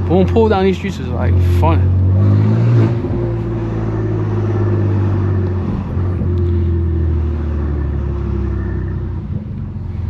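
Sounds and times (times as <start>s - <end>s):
car exhaust drone: 0.0s - 10.0s.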